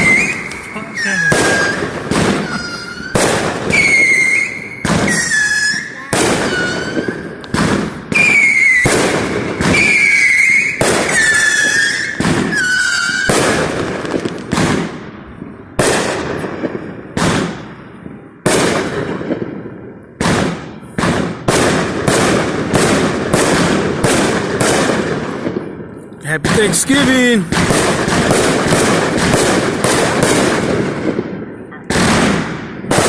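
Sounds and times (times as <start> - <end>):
firework whistles: 0.0 - 13.8
firework bangs: 0.0 - 33.0.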